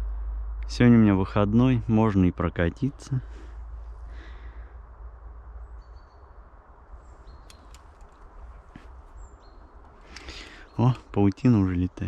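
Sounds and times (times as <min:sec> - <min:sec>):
bird chirps: 0:05.6 - 0:12.0
light clicks: 0:07.4 - 0:08.9.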